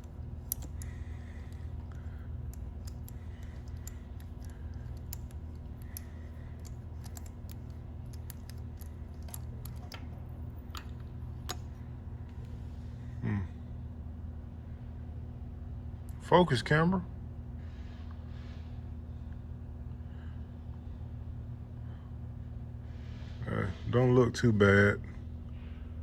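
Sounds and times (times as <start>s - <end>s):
ratchet clicking: 0.0s - 11.8s.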